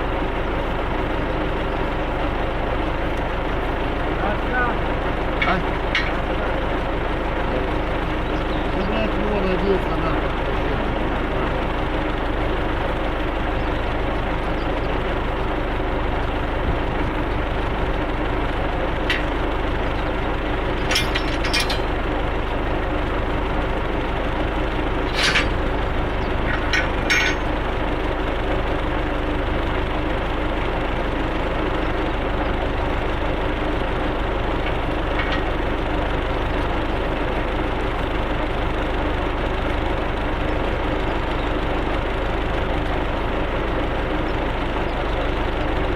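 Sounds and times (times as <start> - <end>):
tractor engine running: 0.0 - 45.9
sharp knocks and clatters: 5.4 - 6.5, 20.8 - 22.0, 25.0 - 27.6, 34.6 - 35.6.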